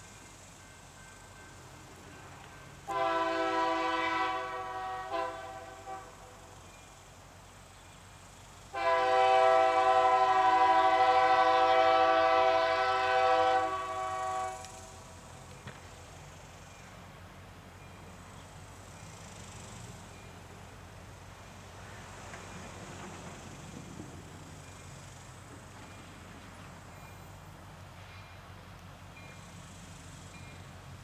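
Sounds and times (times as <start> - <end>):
locomotive air horn blasts: 2.9 - 6.3, 8.7 - 14.9.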